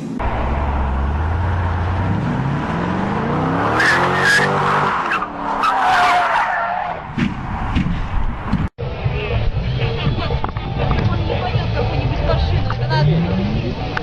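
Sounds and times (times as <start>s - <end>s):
car engine revving: 0.0s - 5.8s, 11.7s - 14.0s.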